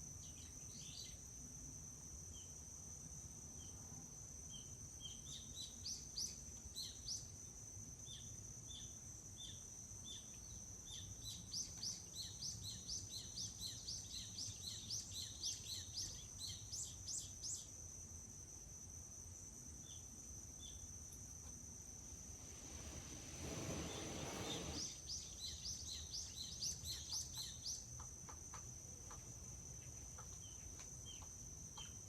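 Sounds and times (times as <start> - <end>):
high insect trill: 0.0 - 32.0
songbird calling: 8.1 - 17.7, 23.4 - 29.2, 29.8 - 32.0.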